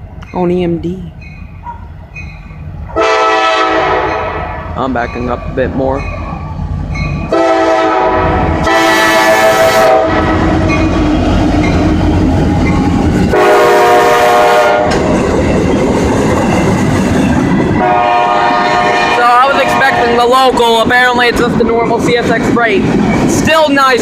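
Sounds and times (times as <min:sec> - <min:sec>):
freight train rumble and wheel clatter: 0:00.0 - 0:24.0
locomotive air horn blasts: 0:02.9 - 0:04.6, 0:07.3 - 0:10.5, 0:13.3 - 0:15.0, 0:17.8 - 0:20.2.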